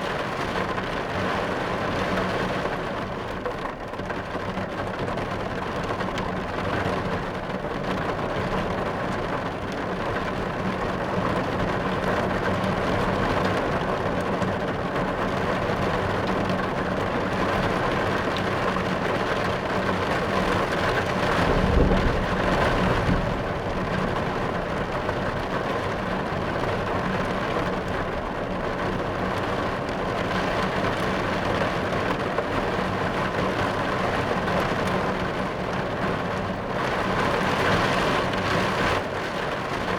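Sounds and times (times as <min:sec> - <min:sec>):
rain on car roof: 0:00.0 - 0:39.9
thunder rumble: 0:20.6 - 0:27.3.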